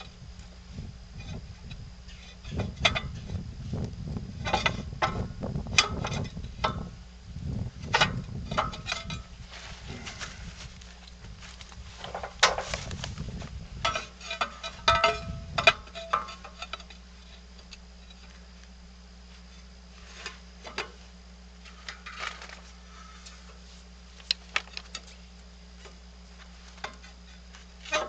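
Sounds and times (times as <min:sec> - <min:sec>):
low steady hum: 0:00.0 - 0:28.0
metal tools clanking on steel frame: 0:01.2 - 0:03.4, 0:04.4 - 0:06.9, 0:07.9 - 0:10.4, 0:11.0 - 0:12.9, 0:13.8 - 0:18.3, 0:19.6 - 0:21.0, 0:26.7 - 0:28.0.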